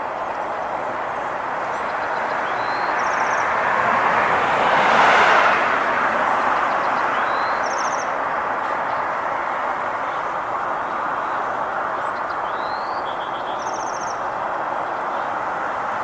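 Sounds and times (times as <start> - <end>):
road traffic noise: 0.0 - 16.0
vehicle passing: 1.6 - 10.1.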